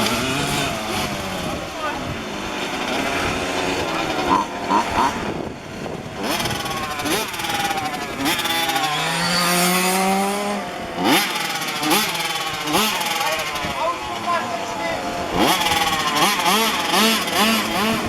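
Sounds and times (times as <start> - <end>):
rc car engines revving: 0.0 - 18.0.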